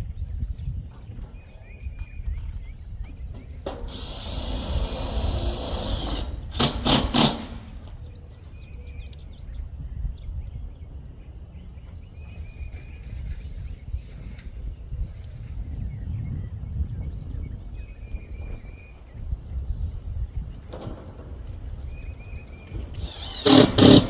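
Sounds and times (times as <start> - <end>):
power driver driving screws: 3.7 - 8.0, 23.0 - 24.0.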